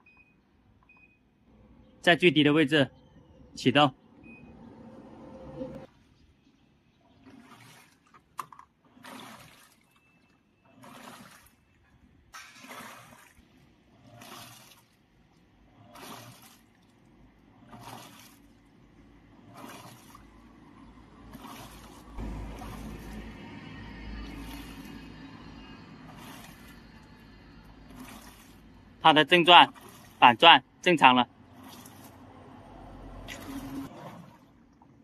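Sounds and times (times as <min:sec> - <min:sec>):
washing machine water swishing: 0:07.0 - 0:35.0.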